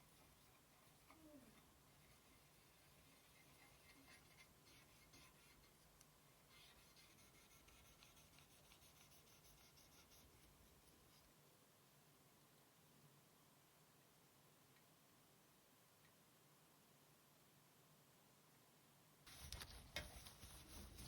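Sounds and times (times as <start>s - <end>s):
faint scratchy scrubbing: 0.0s - 11.3s, 19.3s - 21.0s.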